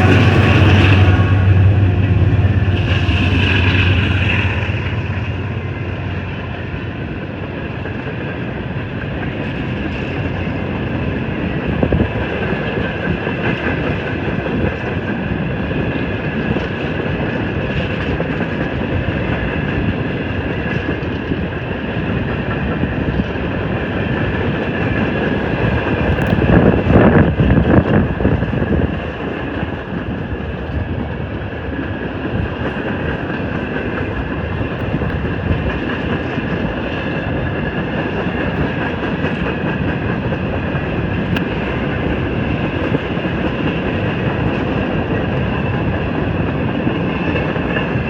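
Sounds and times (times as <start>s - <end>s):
low hum: 0.0s - 7.2s
train wheels rolling on rails: 0.0s - 48.0s.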